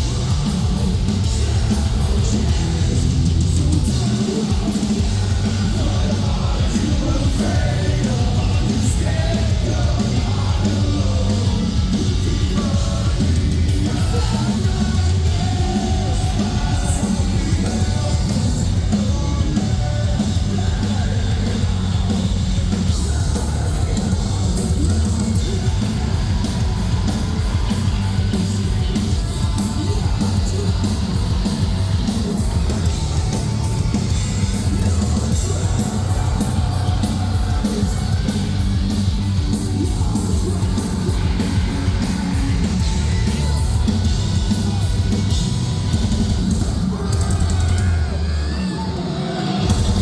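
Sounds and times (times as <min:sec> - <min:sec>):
bass guitar: 0:00.0 - 0:50.0
distorted guitars: 0:00.0 - 0:50.0
drums: 0:00.0 - 0:50.0
person singing and screaming: 0:46.5 - 0:50.0.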